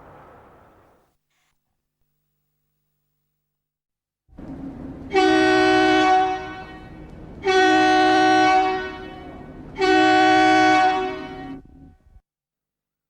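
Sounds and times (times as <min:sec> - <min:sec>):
train air horn blasts: 0:04.4 - 0:12.2.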